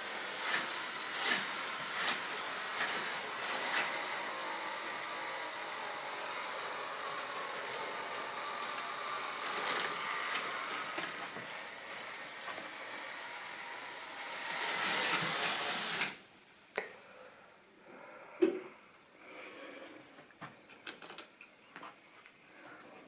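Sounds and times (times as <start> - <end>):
model train whirring on track: 0.0 - 16.2.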